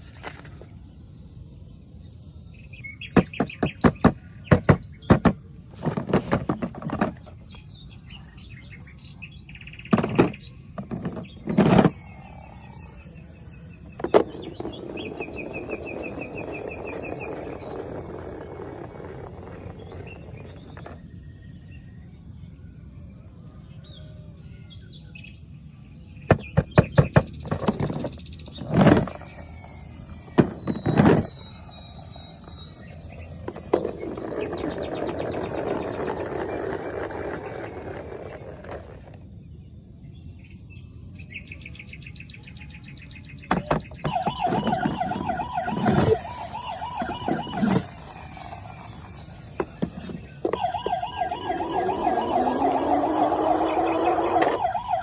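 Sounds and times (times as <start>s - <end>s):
plastic toys clicking and knocking: 3.2s - 7.5s, 9.9s - 12.2s, 26.3s - 29.3s, 30.2s - 31.4s, 43.5s - 55.0s
electronic toy siren wailing: 11.9s - 21.0s, 44.0s - 55.0s.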